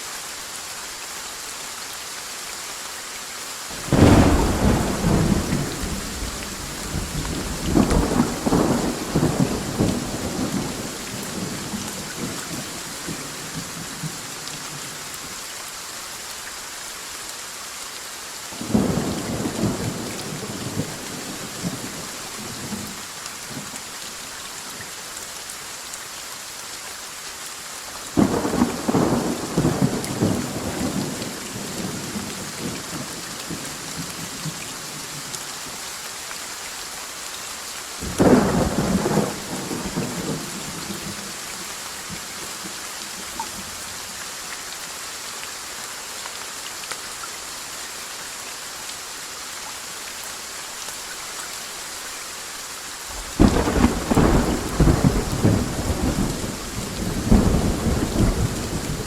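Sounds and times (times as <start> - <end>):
heavy rain hissing: 0.0 - 59.0
thunder rumbling: 3.8 - 12.7, 53.2 - 59.0.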